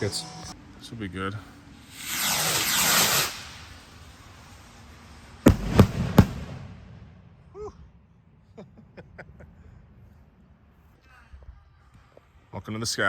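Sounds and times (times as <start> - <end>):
firework rocket launch hiss: 1.6 - 7.5
firework bangs: 1.9 - 7.5
faint firework pops: 5.5 - 7.2.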